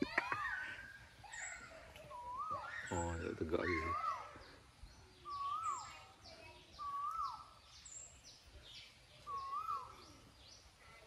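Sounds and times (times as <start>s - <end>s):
faint high bird chirps: 0.0s - 11.0s
bird whistled call: 1.3s - 4.2s, 5.2s - 8.1s, 8.8s - 10.3s.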